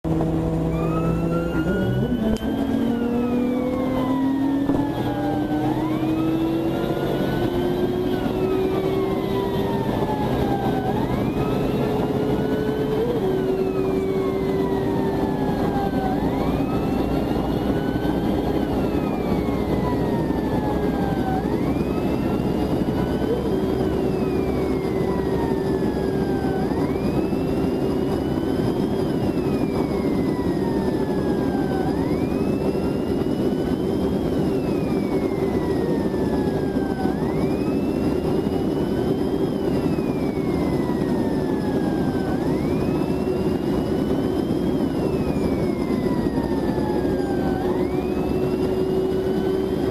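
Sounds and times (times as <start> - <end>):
vehicle engine droning: 0.0 - 49.9
police siren wailing: 0.1 - 49.9.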